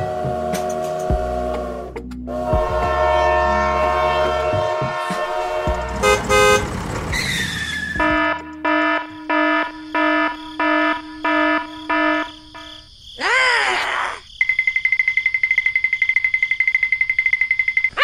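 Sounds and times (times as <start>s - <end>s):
held horn-like tones: 1.7s - 12.7s
falling whistle: 7.2s - 8.1s.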